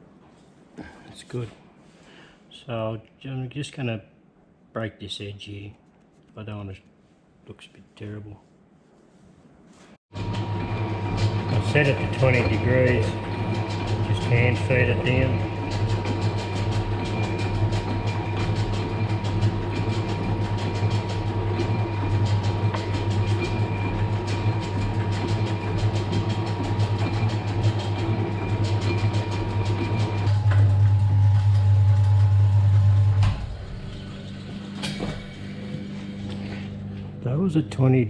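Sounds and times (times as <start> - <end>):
milling machine hum: 10.1 - 37.5
rapid cutting chatter: 10.2 - 30.4.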